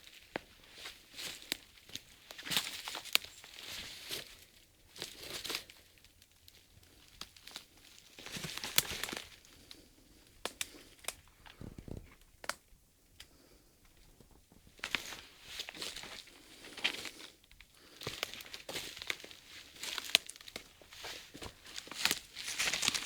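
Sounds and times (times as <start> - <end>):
footsteps crunching through dry leaves: 0.7 - 5.9, 14.8 - 17.3, 17.9 - 23.0
twigs snapping: 6.4 - 12.6, 17.8 - 23.0.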